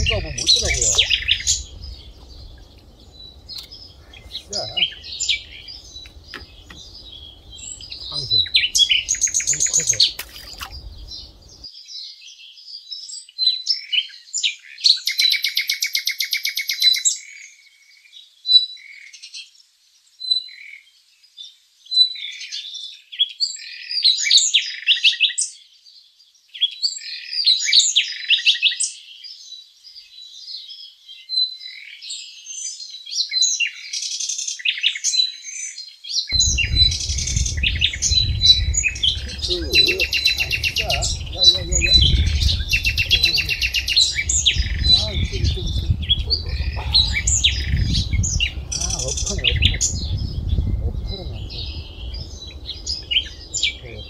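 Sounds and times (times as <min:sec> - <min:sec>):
buzzy bird trill: 0:00.0 - 0:11.6, 0:36.4 - 0:54.0
low rumble: 0:00.0 - 0:11.6, 0:36.4 - 0:54.0
songbirds chirping: 0:00.0 - 0:25.0, 0:25.6 - 0:54.0.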